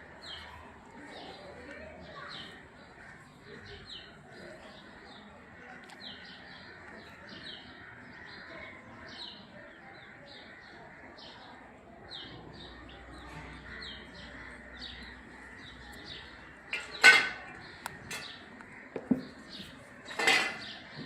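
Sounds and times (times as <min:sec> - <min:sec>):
small birds chirping: 0:00.0 - 0:21.0
brief clattering noises: 0:20.1 - 0:21.0.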